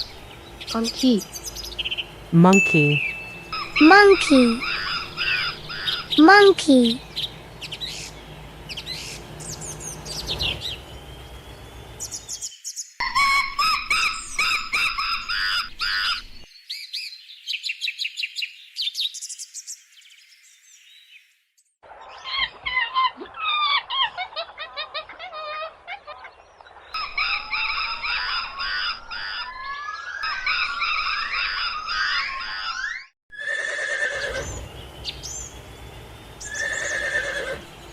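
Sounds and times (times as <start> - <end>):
monkeys calling: 0.0 - 12.4, 13.0 - 16.4, 22.2 - 26.4, 27.0 - 35.6, 36.4 - 37.9
rising squeals: 3.0 - 3.9, 4.6 - 6.2, 7.0 - 12.3, 29.7 - 37.9
monkey chattering and squealing: 3.0 - 8.1.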